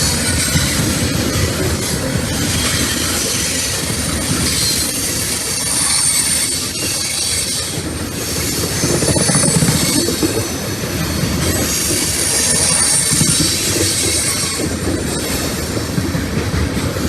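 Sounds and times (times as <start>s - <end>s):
train wheels rumbling on rail: 0.0s - 17.0s
wheels clicking over rail joints: 0.0s - 17.0s
faint high wheel squeal: 2.5s - 10.2s.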